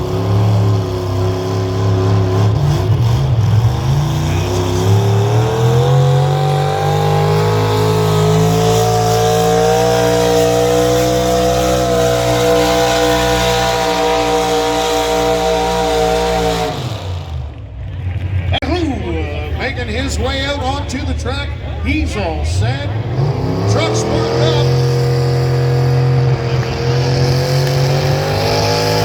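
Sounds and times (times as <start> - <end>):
engine at full throttle: 0.0 - 29.0.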